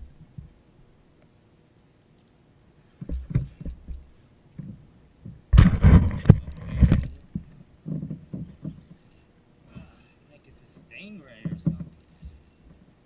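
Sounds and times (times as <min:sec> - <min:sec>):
rough noise: 0:05.5 - 0:07.3.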